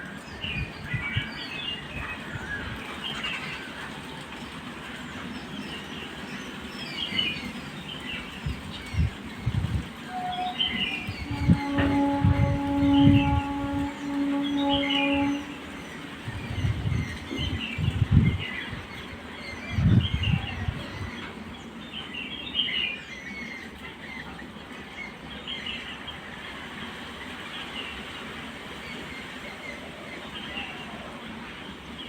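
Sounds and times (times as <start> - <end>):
low rumbling: 8.4 - 21.3.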